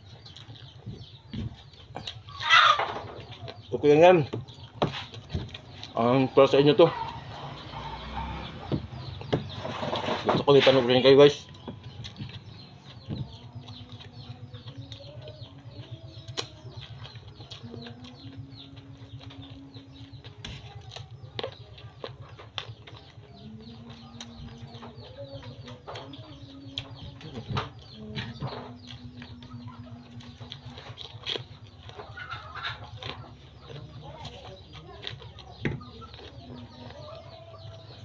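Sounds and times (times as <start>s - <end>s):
chewing and lip-smacking: 0.0s - 6.0s, 11.5s - 38.0s
low fluttering hum: 0.0s - 10.4s, 11.3s - 38.0s.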